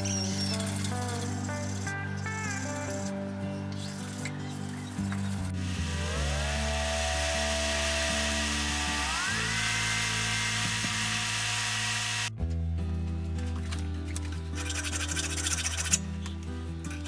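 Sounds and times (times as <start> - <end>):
power tool whining: 0.0 - 12.4
background music: 0.0 - 17.0.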